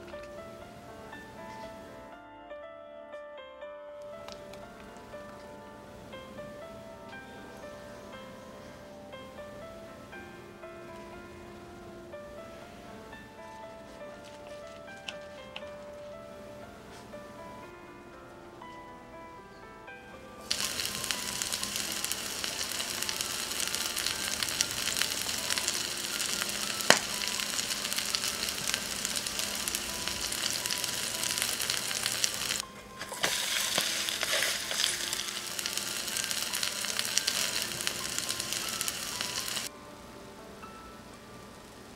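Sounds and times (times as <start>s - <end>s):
batter sizzling in oil: 20.4s - 39.7s.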